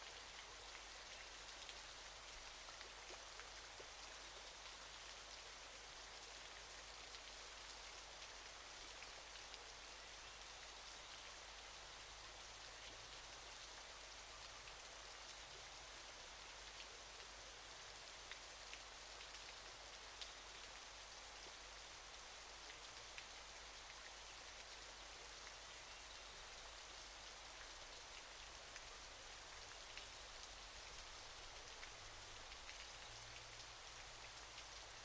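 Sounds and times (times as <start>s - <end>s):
faint waterfall rush: 0.0s - 35.0s
water splashes and drips: 17.9s - 35.0s.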